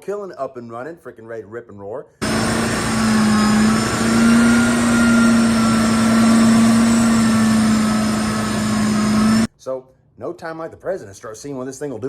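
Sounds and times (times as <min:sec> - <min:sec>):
vehicle engine drone: 0:02.2 - 0:09.5.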